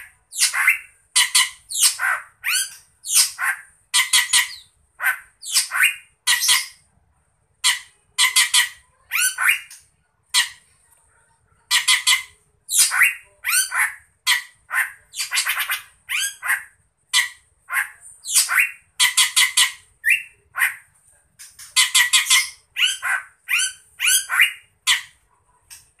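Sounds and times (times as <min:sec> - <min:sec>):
bird squawking and chirping: 0:00.0 - 0:06.8, 0:07.6 - 0:10.6, 0:11.7 - 0:25.2.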